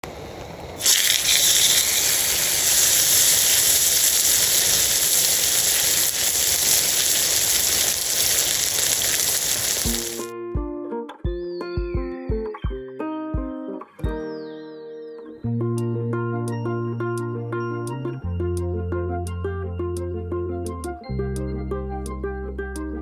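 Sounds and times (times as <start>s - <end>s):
loud steady hiss: 0.1s - 10.3s.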